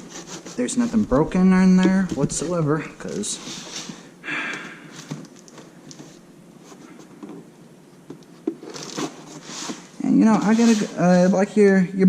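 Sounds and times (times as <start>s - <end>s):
packing tape ripping: 8.6s - 9.2s.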